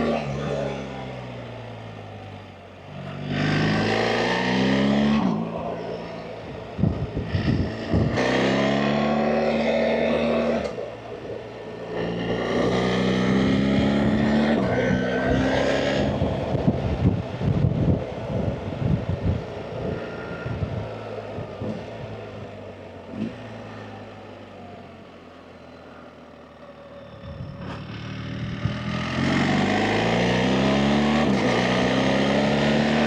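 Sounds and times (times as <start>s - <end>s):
motorcycle engine revving: 2.8s - 24.8s, 26.7s - 33.0s
wind buffeting microphone: 6.3s - 8.9s, 13.0s - 22.6s.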